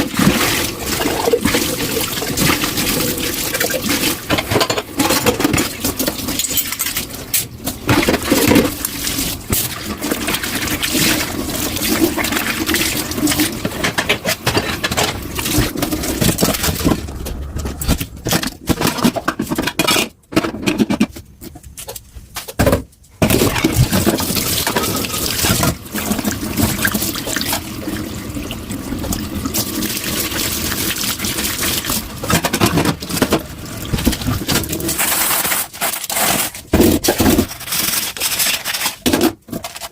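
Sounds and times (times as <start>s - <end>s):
tap water running into sink: 0.0s - 4.6s, 5.2s - 17.1s, 23.4s - 35.0s.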